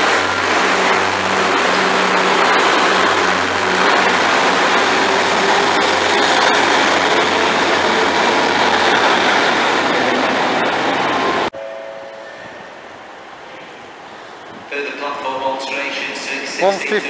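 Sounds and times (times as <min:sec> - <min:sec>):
train wheels rumbling on rails: 0:00.0 - 0:11.5.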